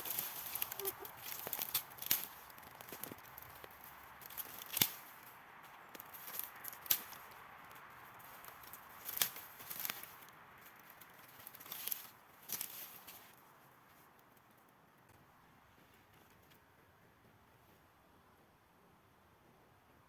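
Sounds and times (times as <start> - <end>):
twigs snapping: 0.0 - 13.4
rustling of dry leaves: 0.0 - 14.7.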